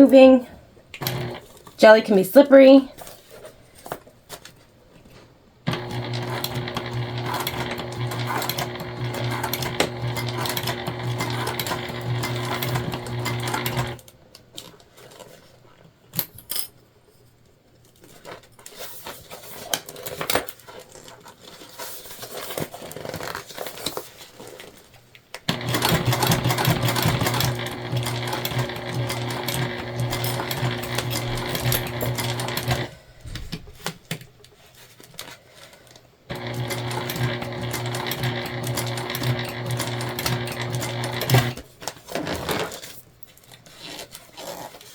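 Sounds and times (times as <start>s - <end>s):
sewing machine stitching: 1.0s - 1.8s, 5.7s - 14.1s, 25.5s - 33.0s, 36.3s - 42.8s.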